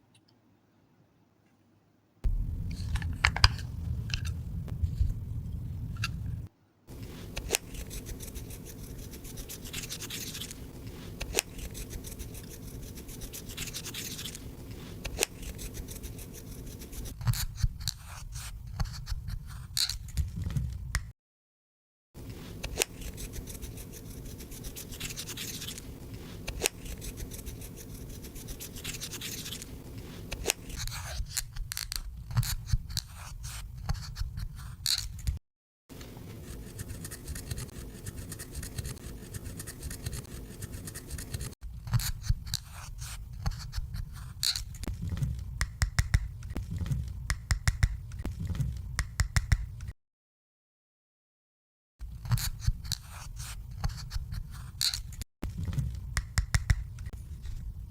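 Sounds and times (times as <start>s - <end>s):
slime scraping and rubbing: 2.7s - 17.2s, 22.2s - 31.3s, 35.9s - 45.2s.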